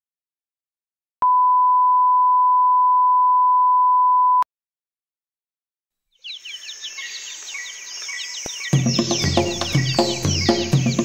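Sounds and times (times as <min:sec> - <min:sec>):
birds chirping rapidly: 0:06.0 - 0:11.0.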